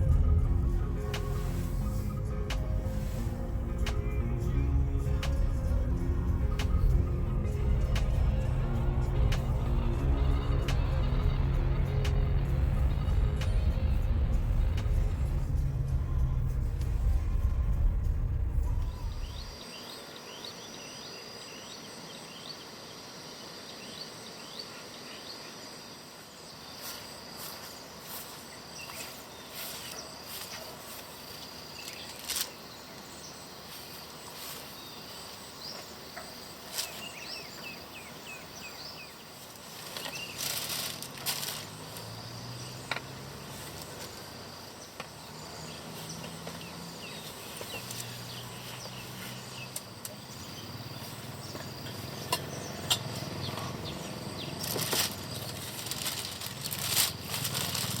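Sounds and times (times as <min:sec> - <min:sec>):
low hum: 0:00.0 - 0:19.6
insects chirping: 0:00.0 - 0:58.0.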